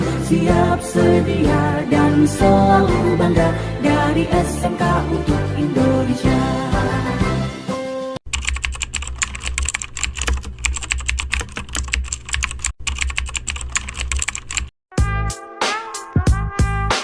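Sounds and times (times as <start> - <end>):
music with a beat: 15.0 - 17.0.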